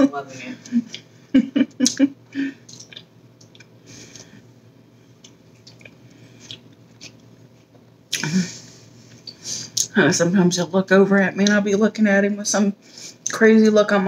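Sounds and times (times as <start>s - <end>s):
person speaking: 0.0s - 1.0s
person chewing food: 2.6s - 4.4s, 5.1s - 8.2s.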